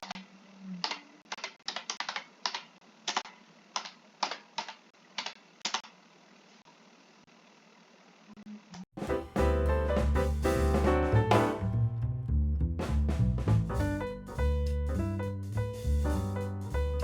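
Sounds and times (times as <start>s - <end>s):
computer keyboard typing: 0.8s - 5.8s.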